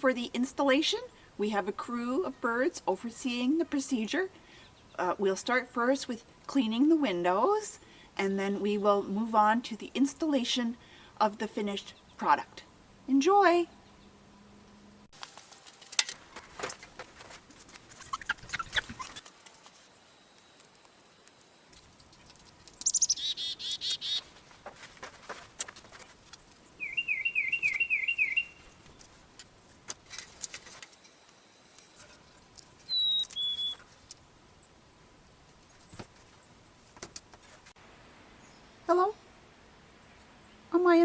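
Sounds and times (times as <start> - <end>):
bird trill: 18.0 - 19.2, 22.8 - 24.3, 26.8 - 28.8, 32.8 - 33.8
bird chirps and whistles: 22.8 - 24.2, 26.8 - 28.7, 32.9 - 33.8.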